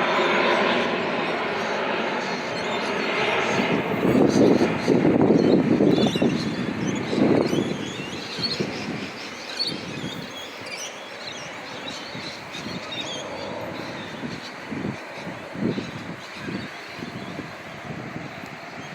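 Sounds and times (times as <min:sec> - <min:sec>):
airplane passing overhead: 0:00.0 - 0:18.9
birds chirping: 0:00.0 - 0:18.9.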